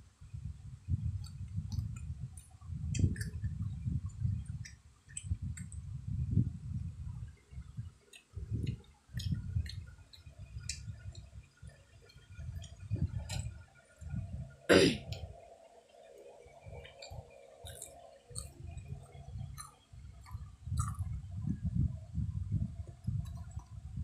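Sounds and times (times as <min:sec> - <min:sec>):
chewing food: 0:01.2 - 0:05.8, 0:07.6 - 0:14.2, 0:15.9 - 0:21.4, 0:22.8 - 0:23.8.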